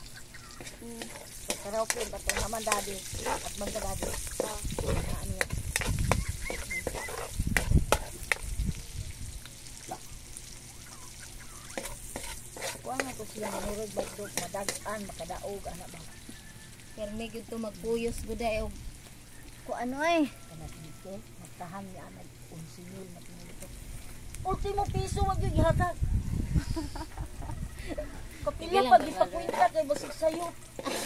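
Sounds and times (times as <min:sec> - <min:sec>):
onion frying in oil: 0:00.0 - 0:26.2, 0:28.4 - 0:31.0
metal spatula scraping a pan: 0:00.5 - 0:08.4, 0:11.6 - 0:15.8, 0:28.8 - 0:31.0.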